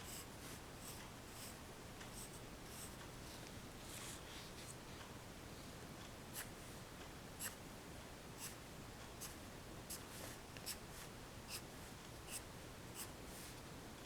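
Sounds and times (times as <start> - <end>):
pencil sketching on paper: 0.0 - 3.0, 13.0 - 13.2
faint steady hiss: 0.0 - 14.0.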